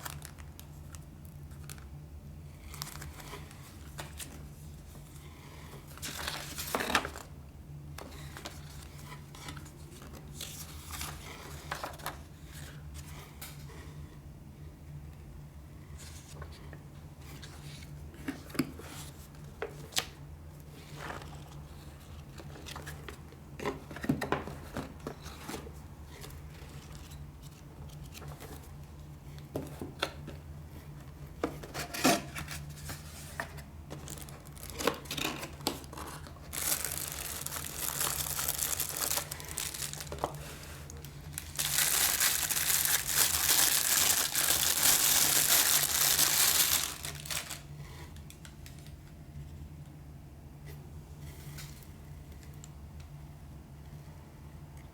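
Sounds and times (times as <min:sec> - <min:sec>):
packaging crinkling and tearing: 0:00.0 - 0:01.9, 0:34.0 - 0:48.9.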